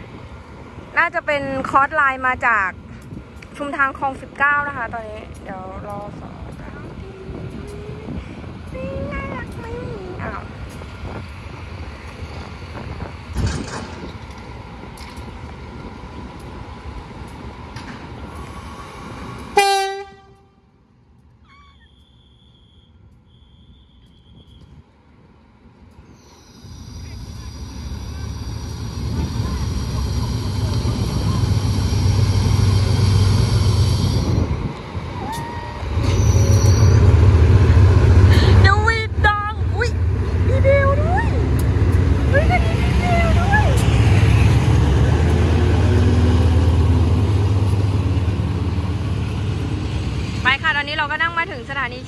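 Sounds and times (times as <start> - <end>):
diesel train rumbling: 0.0 - 52.0
train horn: 19.6 - 20.6.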